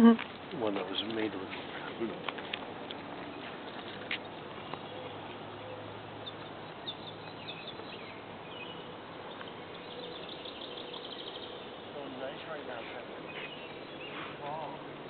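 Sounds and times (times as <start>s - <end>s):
high bird chirps: 3.6s - 12.1s, 13.2s - 14.4s.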